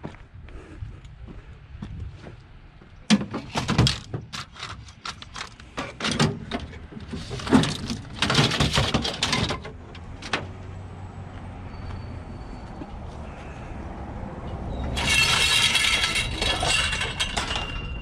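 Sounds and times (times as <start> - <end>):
metal pipe clanking and rattling: 3.1 - 9.8, 14.9 - 18.0.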